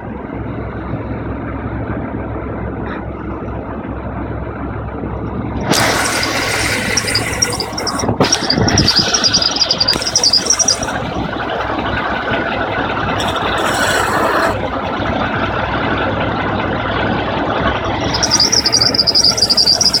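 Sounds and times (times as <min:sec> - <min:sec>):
car engine running: 0:00.0 - 0:20.0
pulley squeaking: 0:05.6 - 0:12.4, 0:13.0 - 0:14.7, 0:17.7 - 0:20.0.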